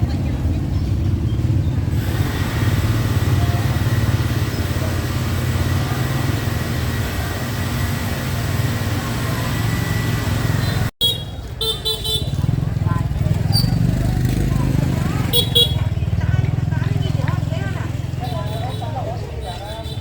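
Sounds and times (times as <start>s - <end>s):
vehicle engine drone: 0.0s - 10.9s.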